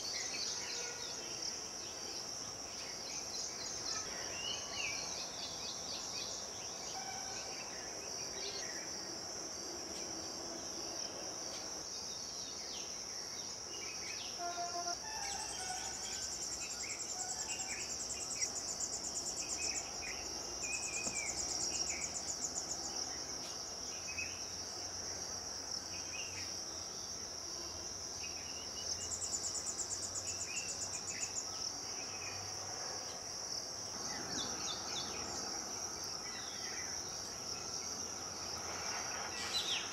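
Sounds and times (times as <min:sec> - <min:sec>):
crickets chirping: 0:00.0 - 0:39.9
pulsing insect trill: 0:14.3 - 0:23.2.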